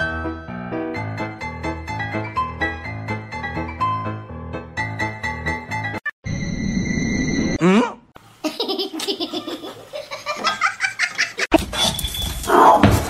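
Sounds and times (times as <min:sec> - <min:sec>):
person laughing: 0:07.6 - 0:11.5.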